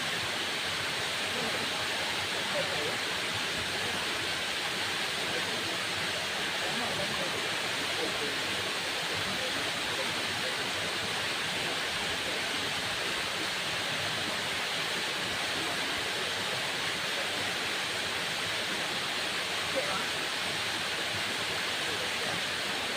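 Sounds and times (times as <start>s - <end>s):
waterfall rushing: 0.0s - 22.9s.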